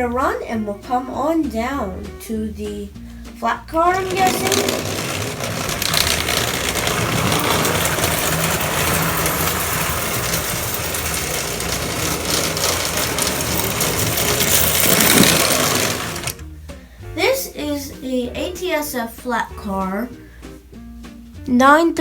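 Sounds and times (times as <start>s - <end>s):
toy train motor whirring: 3.8s - 16.4s
toy train wheels rattling on rails: 3.8s - 16.4s.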